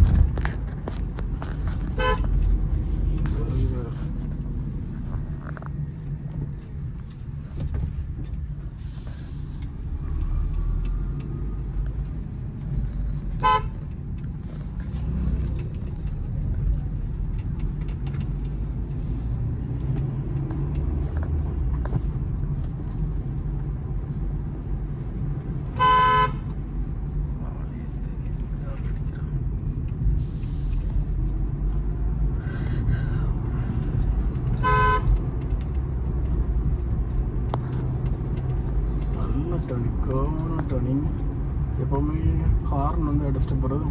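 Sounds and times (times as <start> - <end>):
car engine and road rumble: 0.0 - 43.9
car horn honks: 2.0 - 2.4, 13.4 - 13.8, 25.8 - 26.5, 34.6 - 35.2.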